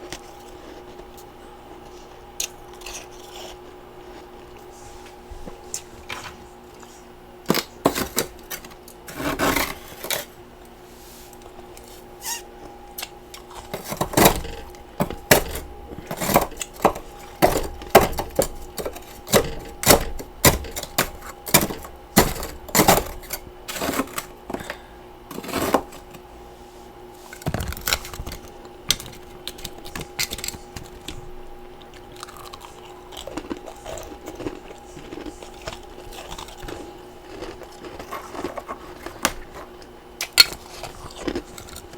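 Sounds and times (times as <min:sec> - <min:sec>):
chewing ice crunches: 0:00.0 - 0:04.7, 0:13.0 - 0:26.1, 0:27.3 - 0:41.9
faint steady hum: 0:00.0 - 0:41.9.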